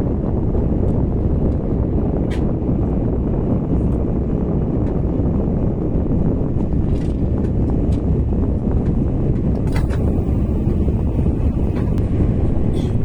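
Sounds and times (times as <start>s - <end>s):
high-speed train rumble: 0.0s - 13.0s.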